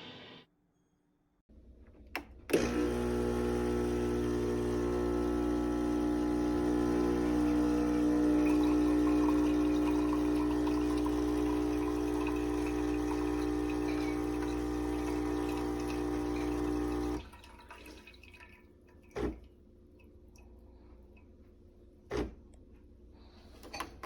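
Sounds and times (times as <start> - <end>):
espresso machine pump buzzing: 2.5 - 17.2
water trickling: 8.2 - 19.2.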